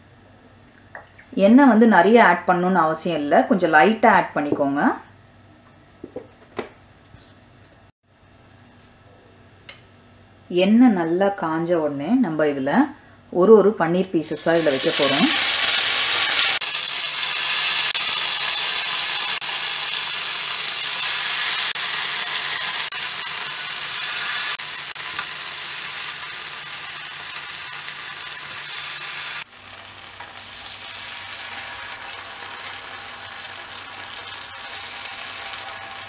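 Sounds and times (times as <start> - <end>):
food sizzling on grill pan: 14.3 - 36.0.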